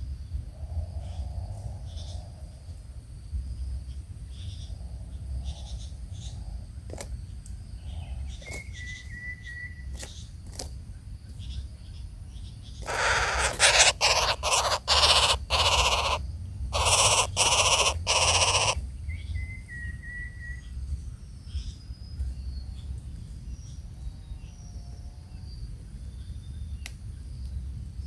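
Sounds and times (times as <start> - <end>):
thin bird whistle: 8.4 - 10.2, 19.1 - 20.8
harsh rasping bird calls: 12.4 - 18.8.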